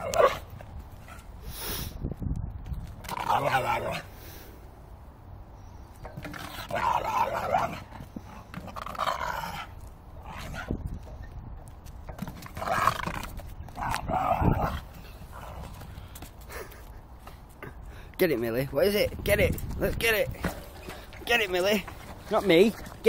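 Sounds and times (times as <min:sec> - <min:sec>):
dog growling: 0:06.4 - 0:07.9, 0:12.5 - 0:15.7.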